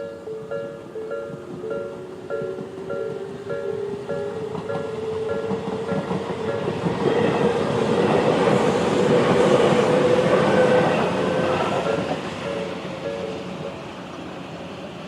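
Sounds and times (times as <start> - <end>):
crossing warning bell chiming: 0.0 - 8.2, 11.3 - 13.8
train wheels clattering over rails: 1.1 - 13.7.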